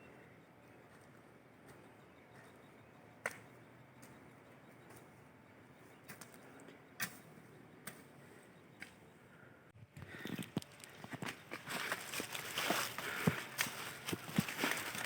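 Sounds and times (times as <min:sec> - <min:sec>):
footsteps on dirt trail: 0:00.8 - 0:02.7, 0:10.0 - 0:15.0.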